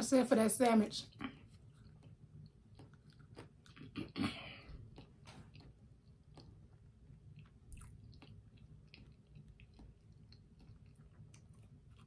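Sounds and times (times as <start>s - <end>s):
person chewing: 1.1s - 12.0s
small mouth clicks: 1.2s - 6.6s.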